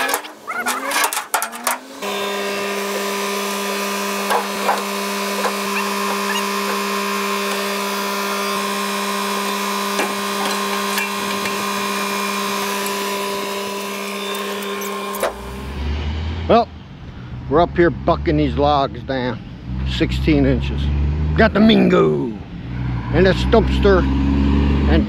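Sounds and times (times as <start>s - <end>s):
chainsaw cutting log: 1.8s - 15.8s.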